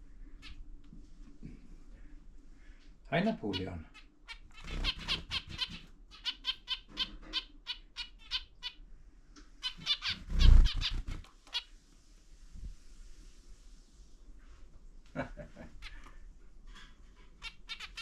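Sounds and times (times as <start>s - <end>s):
zebra finches beeping calls: 3.4s - 8.8s, 9.6s - 11.2s.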